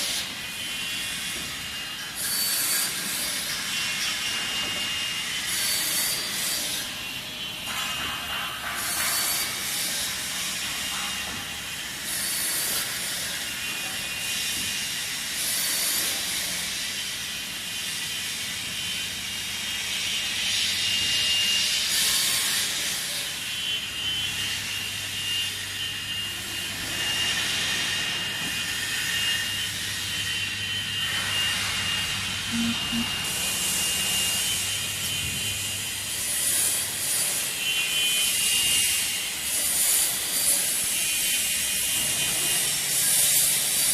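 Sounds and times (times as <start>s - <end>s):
saw machine high whine: 0.0s - 43.9s.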